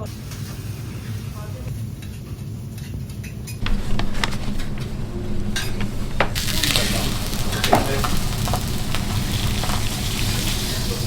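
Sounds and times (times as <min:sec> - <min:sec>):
steak sizzling on griddle: 0:03.6 - 0:11.0.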